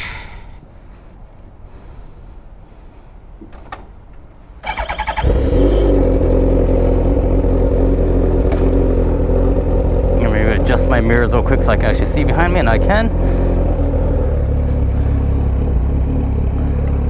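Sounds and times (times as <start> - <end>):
motorcycle starter cranking: 4.6 - 6.6
motorcycle engine idling: 4.6 - 17.0.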